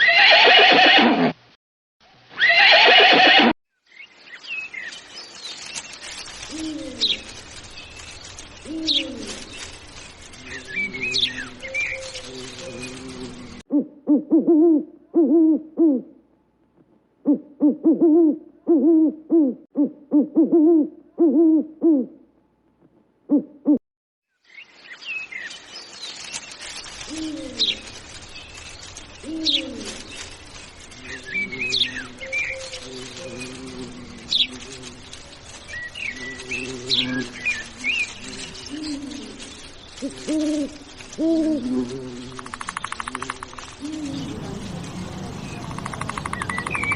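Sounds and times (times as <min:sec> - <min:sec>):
birds chirping: 0:03.9 - 0:13.6, 0:24.5 - 0:46.9.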